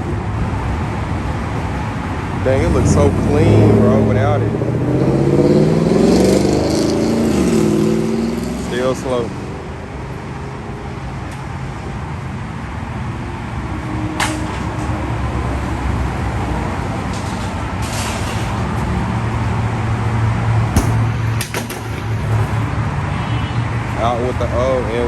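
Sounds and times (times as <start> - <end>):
low vehicle rumble: 13.8 - 23.0
sharp knocks: 20.7 - 22.7.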